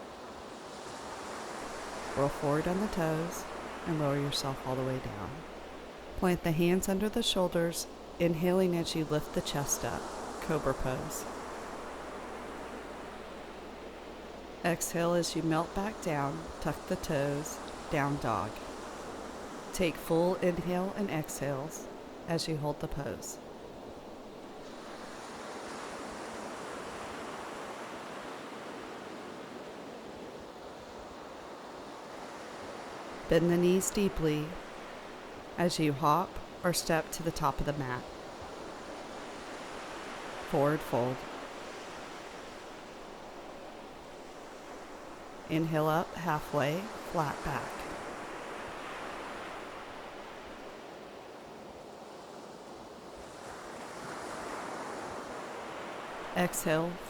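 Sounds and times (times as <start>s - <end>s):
surf washing onto beach: 0.0s - 6.2s, 46.8s - 57.0s
ocean surf washing onto beach: 0.0s - 57.0s.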